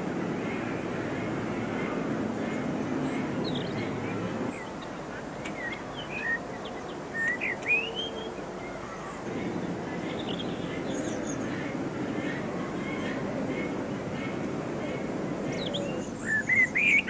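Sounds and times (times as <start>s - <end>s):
low steady background noise: 0.0s - 17.0s
small birds chirping: 0.5s - 8.2s.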